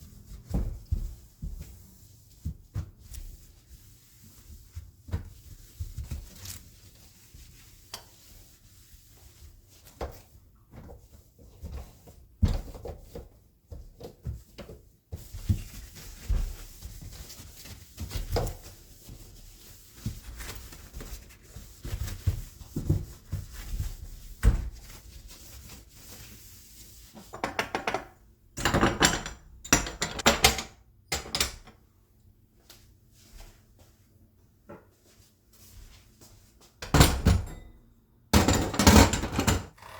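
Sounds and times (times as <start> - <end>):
clattering and rustling: 5.9 - 6.8.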